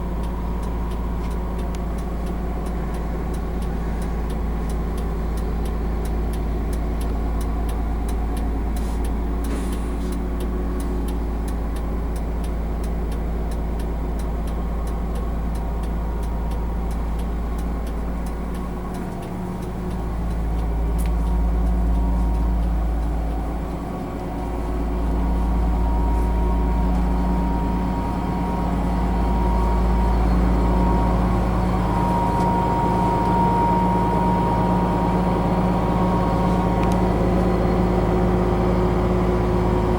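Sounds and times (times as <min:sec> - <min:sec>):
faint regular ticking: 0:00.0 - 0:31.2
diesel bus engine humming: 0:00.0 - 0:39.9
engine whine: 0:00.0 - 0:39.9.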